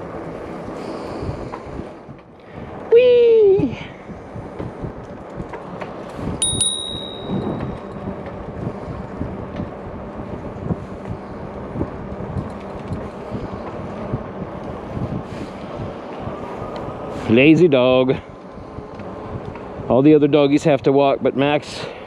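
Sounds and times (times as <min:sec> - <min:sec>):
bikes rumbling along a trail: 0:00.0 - 0:22.0
bicycle bell ding: 0:06.4 - 0:08.0.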